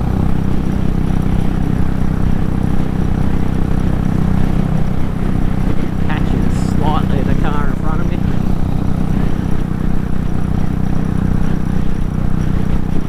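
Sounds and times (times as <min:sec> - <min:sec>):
motorcycle engine running: 0:00.0 - 0:13.0
wind rush over microphone: 0:00.0 - 0:13.0.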